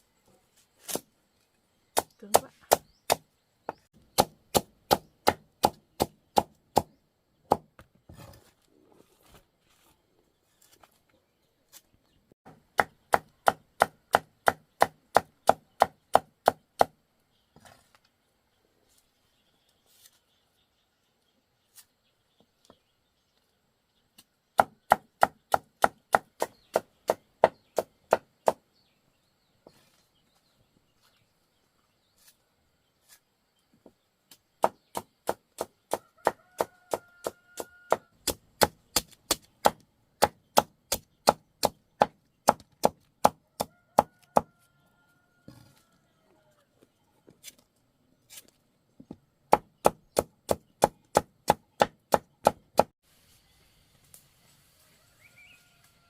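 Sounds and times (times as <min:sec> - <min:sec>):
knife chopping on wooden board: 0:12.5 - 0:17.0.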